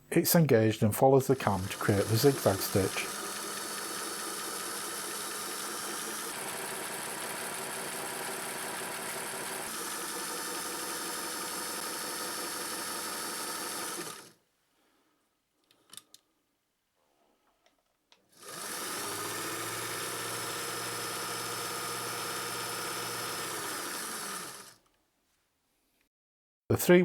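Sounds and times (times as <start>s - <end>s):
sewing machine running: 1.2s - 14.4s, 18.3s - 24.8s.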